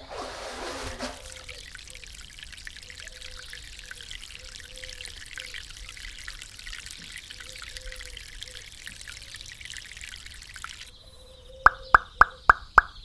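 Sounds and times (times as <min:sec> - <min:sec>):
water pouring and trickling: 0:00.0 - 0:13.0
sharp plop: 0:11.7 - 0:13.0.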